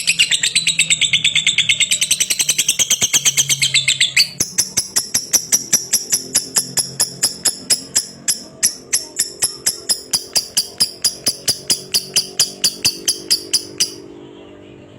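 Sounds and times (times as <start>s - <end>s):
lovebird chatter: 0.0s - 14.0s.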